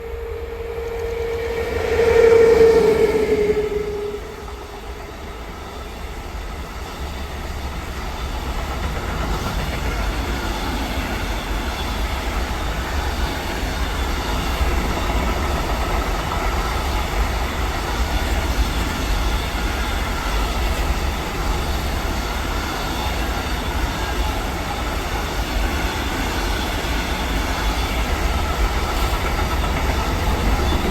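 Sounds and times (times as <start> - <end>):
pitched note: 0.0 - 5.2
train rumbling past: 0.0 - 30.9.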